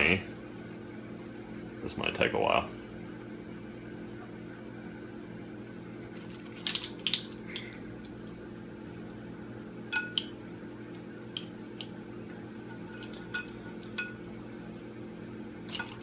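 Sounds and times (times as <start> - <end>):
kitchen appliance hum: 0.0 - 16.0
kitchen utensils clinking: 9.8 - 10.3, 12.6 - 14.2, 15.7 - 16.0.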